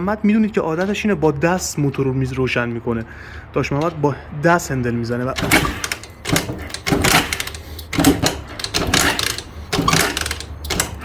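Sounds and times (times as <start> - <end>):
motorcycle kick-start strokes: 5.3 - 11.0.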